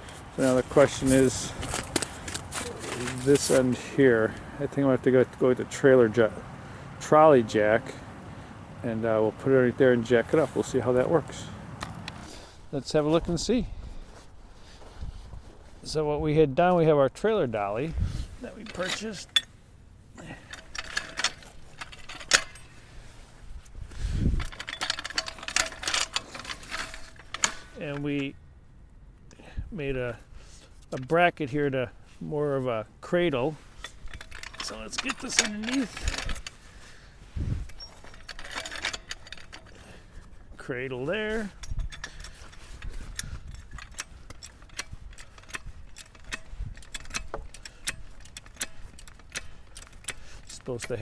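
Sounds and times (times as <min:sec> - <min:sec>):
metallic clicks of equipment: 0:17.2 - 0:28.4, 0:29.2 - 0:51.0.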